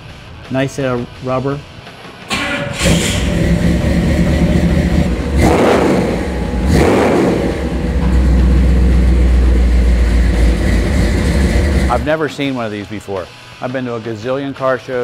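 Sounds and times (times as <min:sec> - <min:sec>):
car engine starting and revving: 0:02.3 - 0:12.1.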